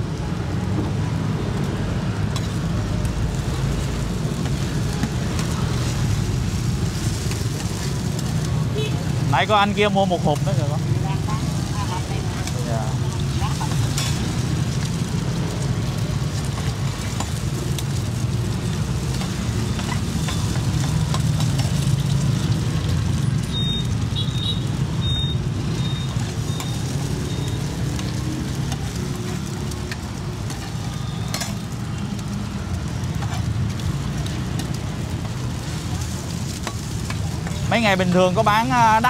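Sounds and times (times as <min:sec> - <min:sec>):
food sizzling in oil: 0:00.0 - 0:39.0
street traffic rumble: 0:00.0 - 0:39.0.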